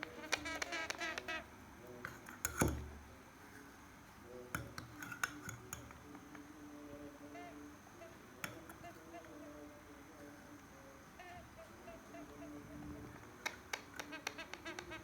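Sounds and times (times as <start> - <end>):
parrot chick chirping: 0.0 - 1.5, 11.2 - 15.0.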